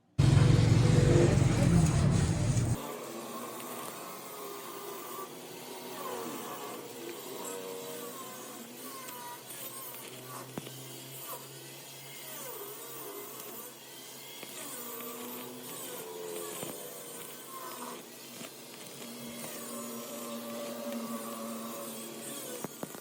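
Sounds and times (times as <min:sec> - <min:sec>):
lathe motor hum: 0:00.2 - 0:23.0.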